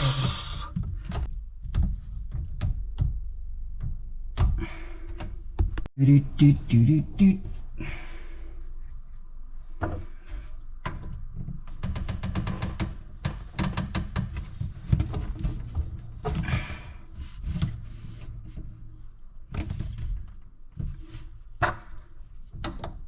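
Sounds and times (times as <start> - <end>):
plastic pipes knocking and clicking: 10.8 - 17.8, 19.5 - 23.0.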